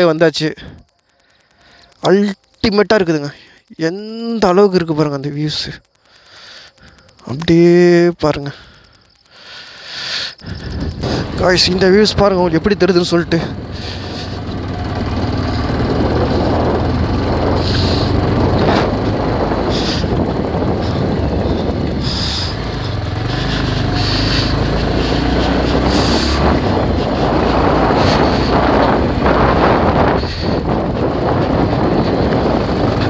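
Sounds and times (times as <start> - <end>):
motorcycle engine running: 10.3 - 33.0
wind rush on microphone: 10.4 - 33.0.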